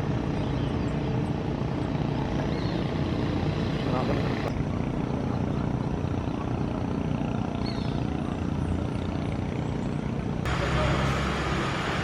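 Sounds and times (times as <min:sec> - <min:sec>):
faint high chirp: 0:07.6 - 0:08.0.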